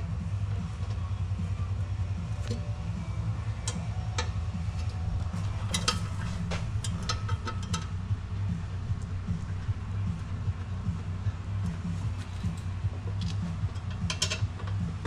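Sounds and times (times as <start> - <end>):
steady low hum: 0.0 - 15.0
metallic clicks of hand tools: 12.4 - 14.8.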